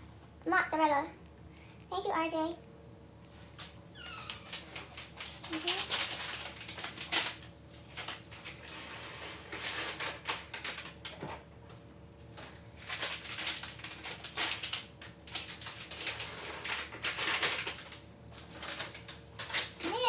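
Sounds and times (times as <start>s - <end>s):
food packaging crinkling: 3.6s - 11.3s, 12.3s - 20.0s.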